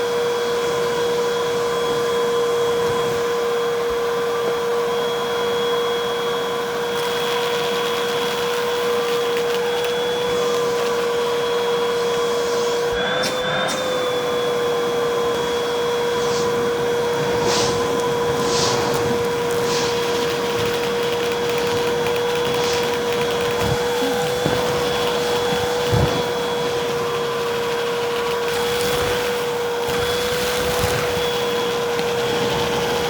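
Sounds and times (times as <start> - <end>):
vacuum cleaner motor whine: 0.0 - 33.0
debris crackling in vacuum: 6.8 - 11.8, 15.3 - 33.0.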